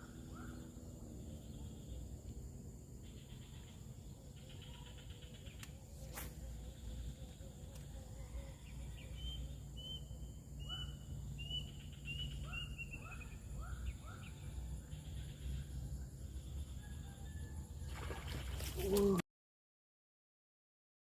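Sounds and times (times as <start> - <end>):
faint insect buzzing: 0.9 - 12.4
bird calling: 9.0 - 15.6.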